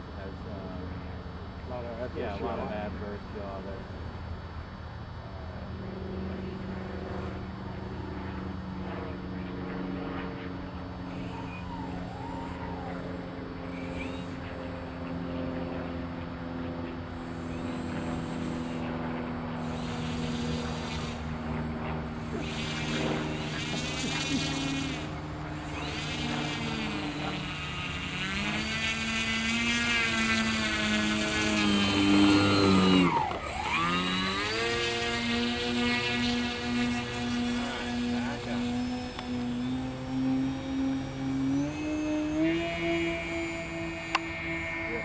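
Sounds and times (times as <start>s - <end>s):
model airplane motors whining: 0.0s - 45.0s.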